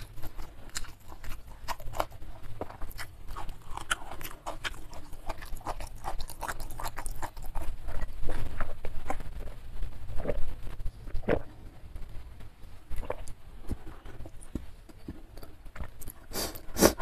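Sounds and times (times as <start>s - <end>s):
chewing with wet smacks: 0.0s - 9.5s.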